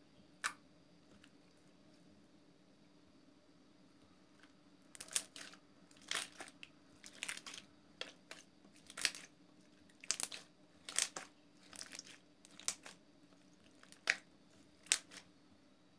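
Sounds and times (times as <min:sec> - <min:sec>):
slime squeezed with wet pops: 0:09.9 - 0:13.0, 0:13.6 - 0:14.2, 0:14.8 - 0:15.2.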